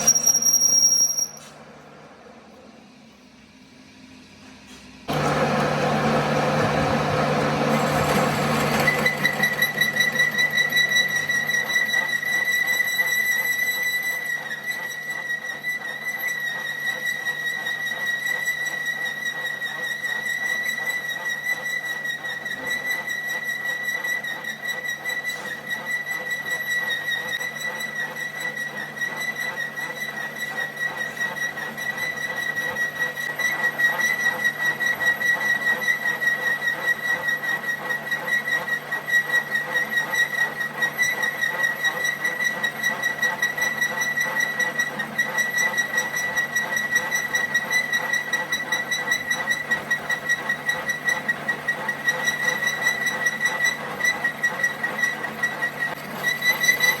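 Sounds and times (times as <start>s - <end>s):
high-pitched whine: 0.0s - 1.6s.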